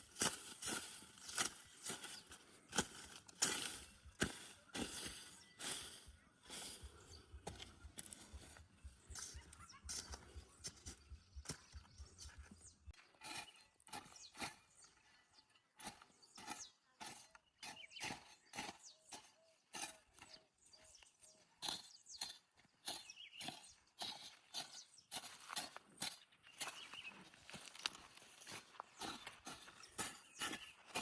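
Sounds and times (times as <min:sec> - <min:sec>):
footsteps on dry leaves: 0:00.0 - 0:14.6, 0:24.0 - 0:31.0.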